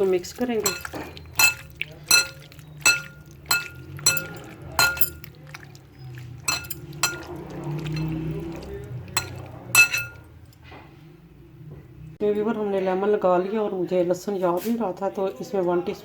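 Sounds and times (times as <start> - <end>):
spoon clinking against glass bowl: 0.6 - 10.4.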